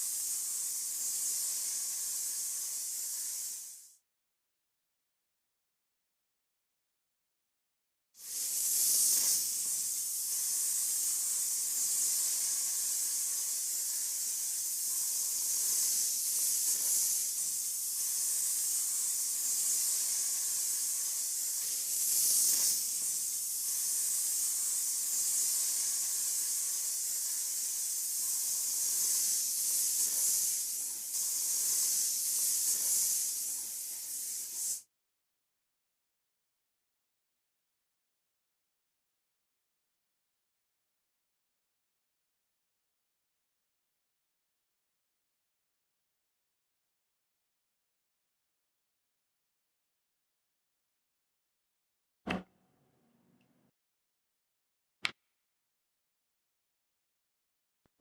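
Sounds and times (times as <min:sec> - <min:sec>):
high-pitched hiss of spraying air: 0:00.0 - 0:04.0, 0:08.2 - 0:34.9.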